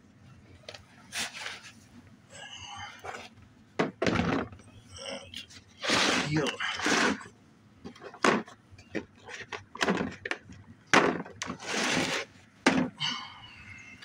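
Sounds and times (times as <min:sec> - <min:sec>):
rustling and scraping: 0:00.2 - 0:02.2, 0:02.8 - 0:14.0
metal tools knocking and clunking: 0:03.8 - 0:04.7, 0:07.8 - 0:11.6.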